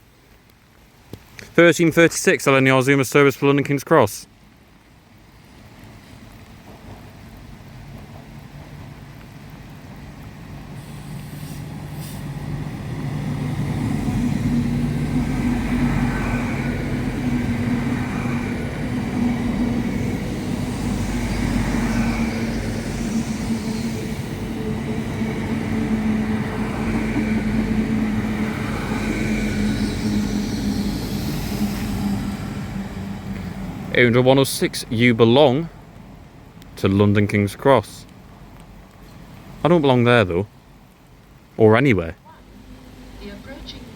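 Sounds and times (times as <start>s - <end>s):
train engine hum: 3.8s - 43.9s
train wheel rumble: 5.2s - 37.0s, 42.2s - 43.9s.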